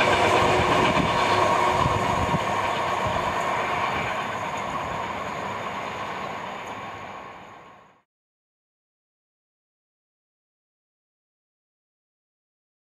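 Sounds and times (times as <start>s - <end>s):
wheel-on-rail rumble: 0.0s - 8.0s.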